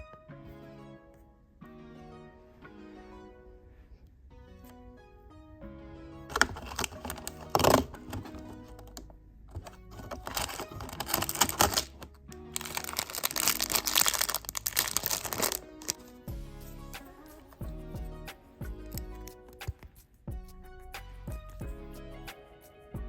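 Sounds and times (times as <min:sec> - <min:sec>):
soft background music: 0:00.0 - 0:23.0
plastic toy bricks clicking: 0:06.3 - 0:16.0
packaging crinkling: 0:06.3 - 0:16.1.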